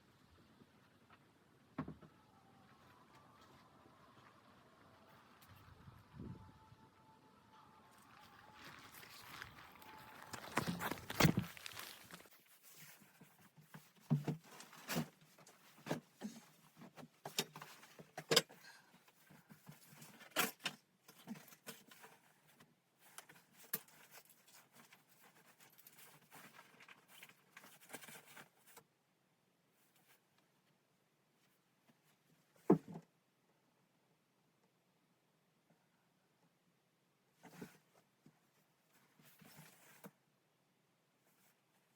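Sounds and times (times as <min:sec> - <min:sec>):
faint rustling: 0:08.0 - 0:18.1.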